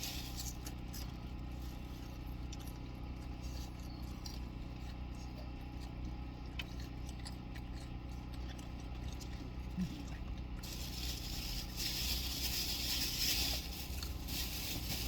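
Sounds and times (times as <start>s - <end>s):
eating clicks and scrapes: 0.0s - 15.0s
low hum inside car: 0.0s - 15.0s
rustling: 10.6s - 15.0s.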